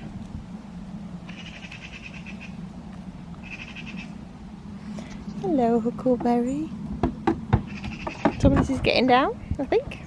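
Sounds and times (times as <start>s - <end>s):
steady low hum: 0.0s - 10.0s
high pulsing animal calls: 1.2s - 2.6s, 3.4s - 4.2s, 7.6s - 8.5s.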